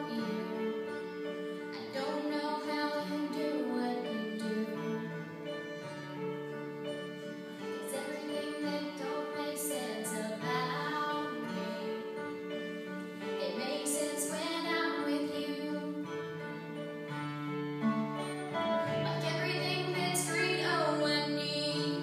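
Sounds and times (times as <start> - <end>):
person singing: 0.0 - 0.8, 1.7 - 5.7, 7.8 - 12.2, 13.3 - 16.6, 18.8 - 22.0
held instrumental chords: 0.0 - 22.0.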